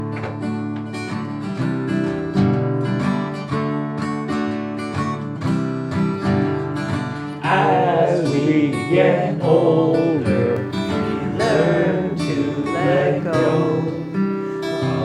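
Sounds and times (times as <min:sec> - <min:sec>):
acoustic guitar strumming: 0:00.0 - 0:15.0
person singing: 0:07.4 - 0:15.0.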